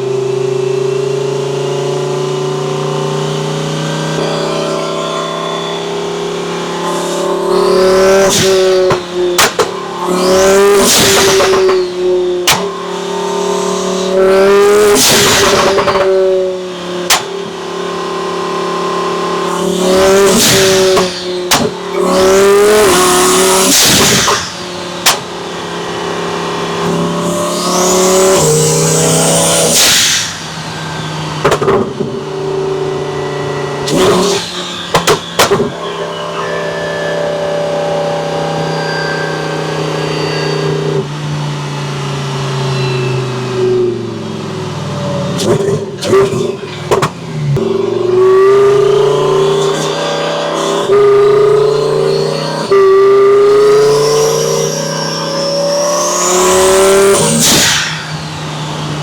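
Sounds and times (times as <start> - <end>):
high turbo whine: 0.0 - 59.0
sports car accelerating: 0.0 - 59.0
exhaust cracks: 6.6 - 36.7.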